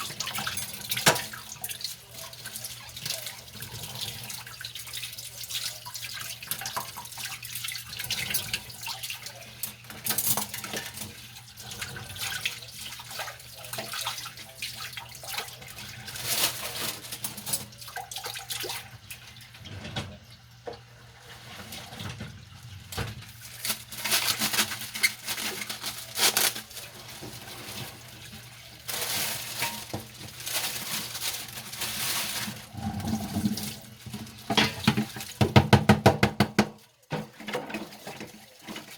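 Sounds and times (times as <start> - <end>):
scrubbing dishes: 0.0 - 38.9
tap water running and splashing: 0.0 - 38.9
dishes knocking: 34.5 - 36.8.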